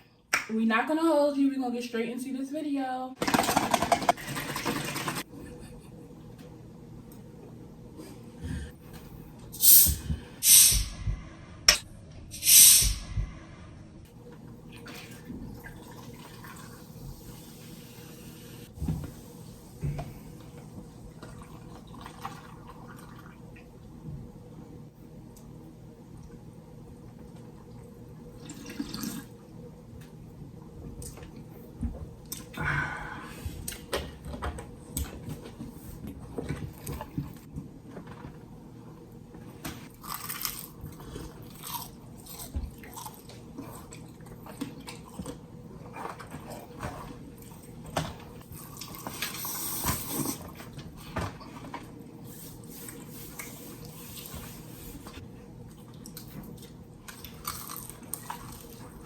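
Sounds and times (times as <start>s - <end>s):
wet chewing: 39.9s - 47.6s.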